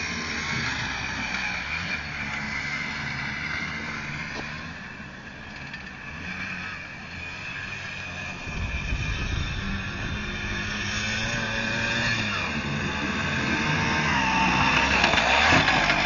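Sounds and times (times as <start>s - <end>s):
dirt-bike engines revving: 0.0s - 16.0s
loud low rumble: 8.4s - 11.8s.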